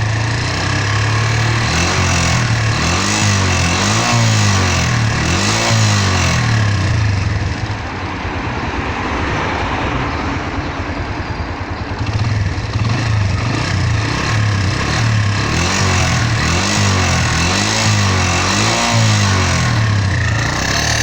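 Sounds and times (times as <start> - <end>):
motorcycle engine revving: 0.0 - 8.3, 11.6 - 21.0
sharp metallic engine noise: 9.8 - 21.0.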